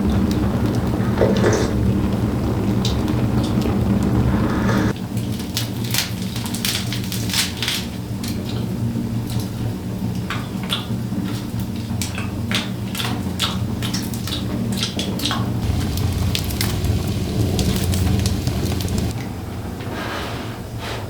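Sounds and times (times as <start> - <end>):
steady rain falling: 0.0 - 5.0, 14.8 - 19.2.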